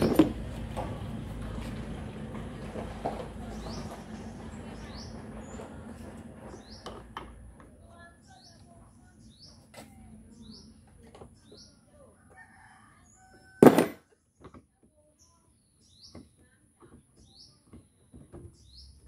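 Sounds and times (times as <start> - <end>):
loud knock: 13.6 - 14.0.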